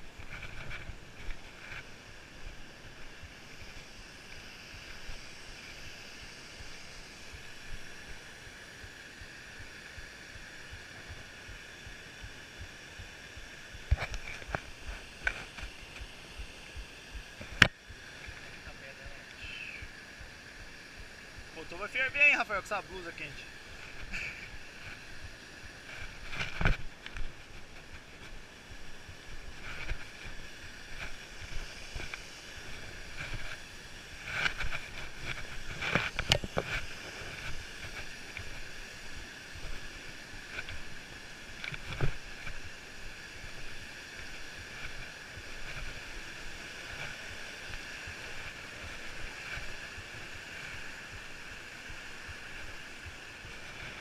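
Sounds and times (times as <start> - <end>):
rubbing on microphone: 0.0 - 2.0
wind hiss on microphone: 0.0 - 54.0.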